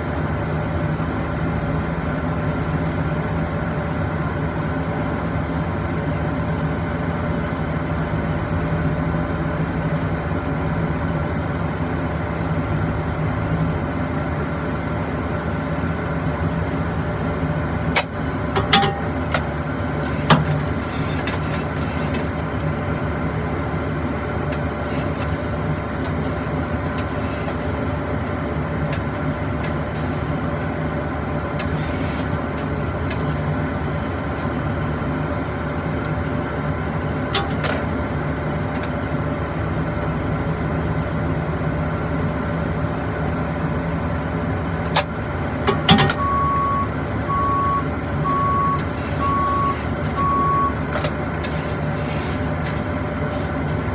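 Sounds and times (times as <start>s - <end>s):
engine droning: 0.0s - 53.9s
sharp clicks and knocks: 18.0s - 22.4s, 37.3s - 37.9s, 44.8s - 47.2s.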